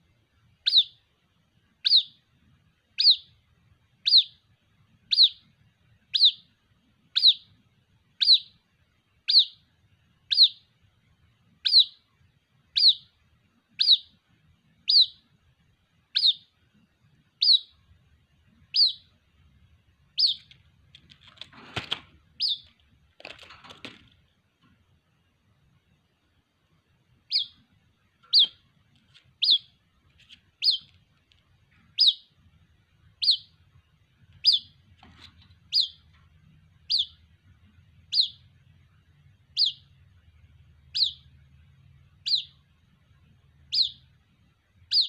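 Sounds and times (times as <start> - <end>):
bird chick peeping: 0.5 - 10.9, 11.6 - 24.2, 26.8 - 45.0
rustling noise: 20.4 - 24.3, 28.9 - 29.4, 30.0 - 31.8, 34.9 - 35.7.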